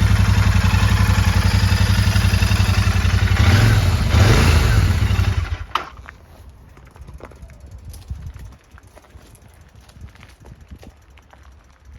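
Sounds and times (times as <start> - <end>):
motorcycle engine idling: 0.0 - 5.8.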